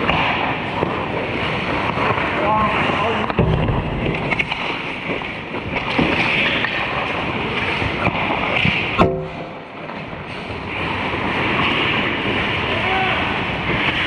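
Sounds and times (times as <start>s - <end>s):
rink noise: 0.2s - 12.6s
sharp knocks: 3.4s - 4.8s, 9.0s - 9.8s.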